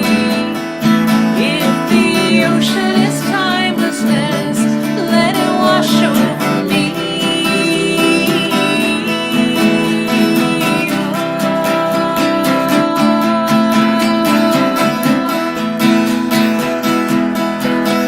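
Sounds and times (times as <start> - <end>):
strummed acoustic guitar: 0.0 - 18.0.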